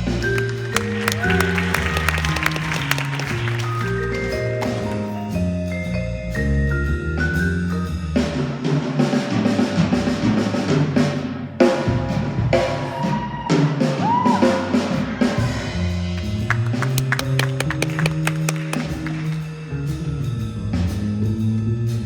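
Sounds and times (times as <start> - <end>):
vibraphone notes: 0.0 - 9.4, 15.8 - 22.0
drum kit with snare and cymbals: 0.0 - 22.0
electric bass line: 15.7 - 22.0.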